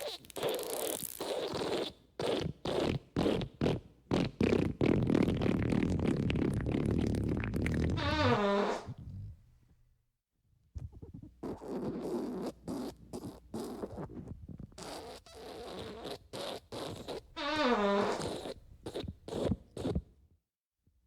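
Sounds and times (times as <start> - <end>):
fart sound effects: 0.0 - 9.3, 14.8 - 20.0.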